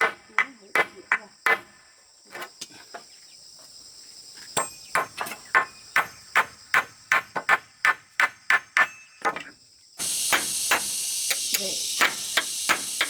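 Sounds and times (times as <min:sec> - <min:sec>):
crickets chirring: 0:00.0 - 0:13.0
hammer blows: 0:10.0 - 0:13.0.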